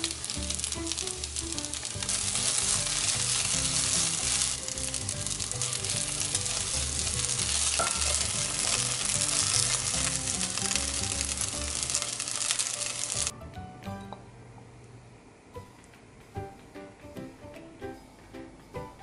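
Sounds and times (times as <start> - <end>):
fried rice sizzling in a pan: 0.0 - 13.3
wooden spoon stirring: 0.0 - 13.3.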